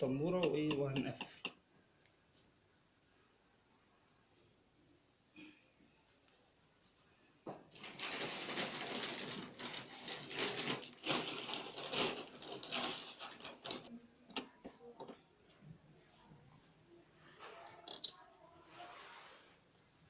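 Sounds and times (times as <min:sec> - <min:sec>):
scraping and rustling of machine parts: 0:07.7 - 0:13.9.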